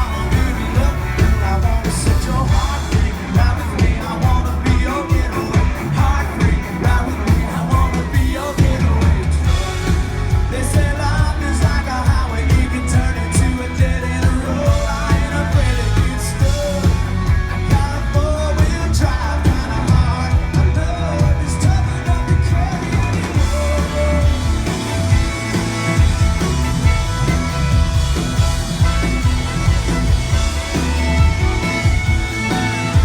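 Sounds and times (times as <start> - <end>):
lead singer singing: 0.0 - 25.4
heavy bass: 0.0 - 33.0
live country band: 0.0 - 33.0
steady drum beat: 0.0 - 33.0.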